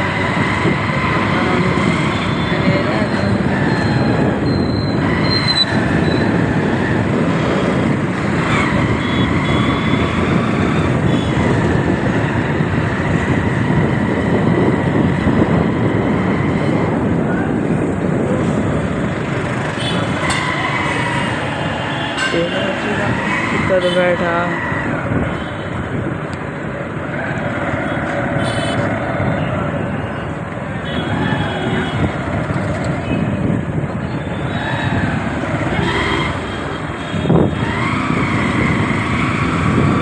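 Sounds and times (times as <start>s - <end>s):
wind rushing: 0.0s - 23.7s
motorcycle riding in traffic: 0.0s - 40.0s.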